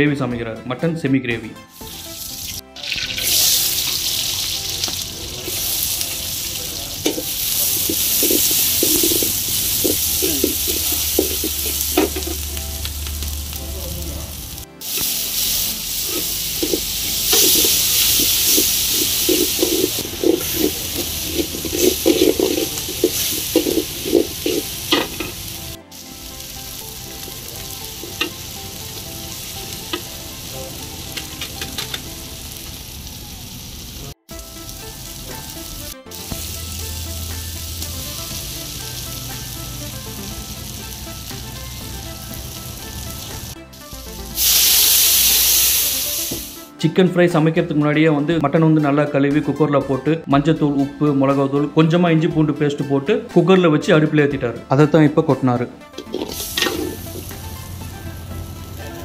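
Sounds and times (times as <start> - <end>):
vegetables sizzling in hot oil: 1.8 - 46.7, 56.0 - 59.0
metal ladle scraping pan: 7.0 - 12.4, 16.0 - 25.8, 55.9 - 57.4.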